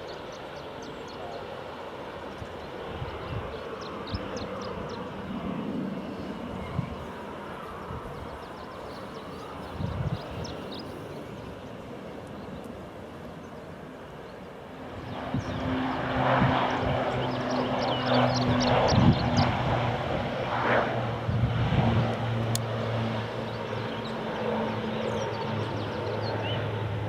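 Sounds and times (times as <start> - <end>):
aircraft engines droning: 0.0 - 27.0.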